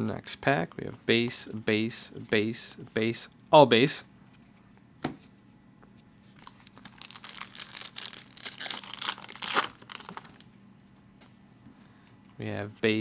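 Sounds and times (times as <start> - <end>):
foil wrapper tearing and crinkling: 6.4 - 10.5.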